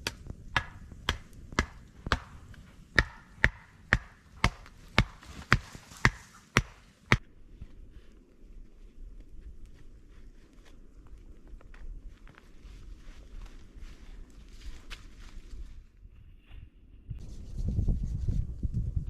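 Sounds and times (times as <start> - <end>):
hand tool chopping knocks: 0.0 - 2.4, 3.0 - 6.8.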